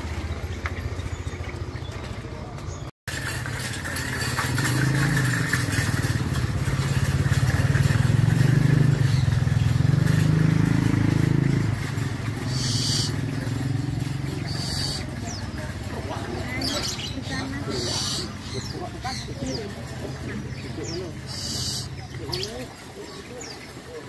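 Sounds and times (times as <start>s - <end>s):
engine droning: 0.0s - 24.0s.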